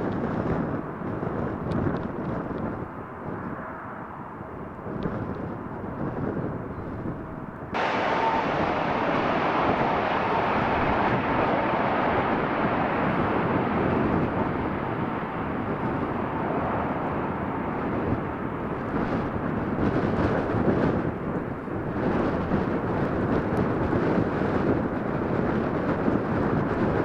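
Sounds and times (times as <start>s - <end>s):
wind buffeting microphone: 0.0s - 27.0s
jet engine roar: 7.8s - 27.0s.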